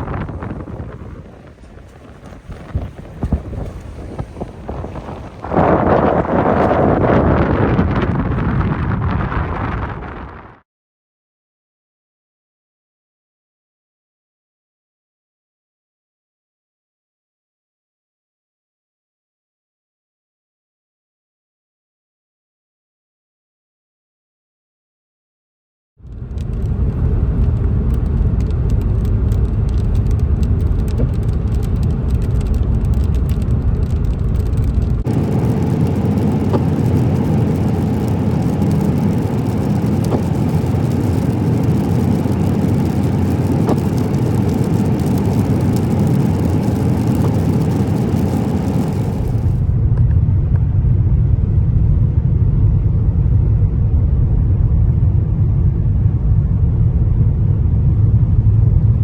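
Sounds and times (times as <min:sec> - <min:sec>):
car engine and road rumble: 0:00.0 - 0:10.5, 0:26.0 - 0:59.0.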